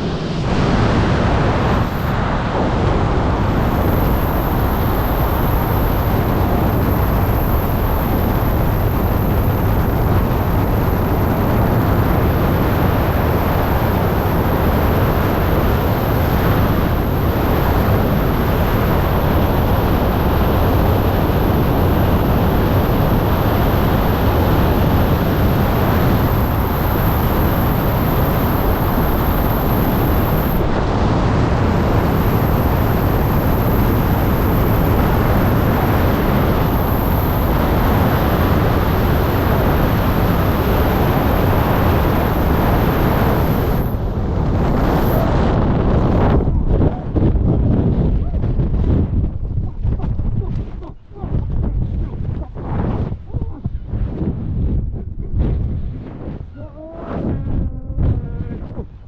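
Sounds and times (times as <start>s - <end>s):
wind roaring over microphone: 0.0s - 59.0s.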